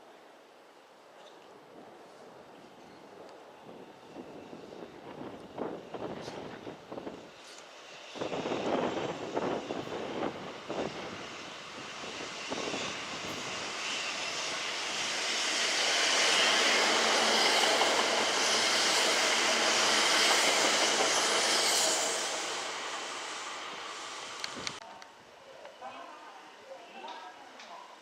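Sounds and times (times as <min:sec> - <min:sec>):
electric train rushing past: 0:03.5 - 0:24.8.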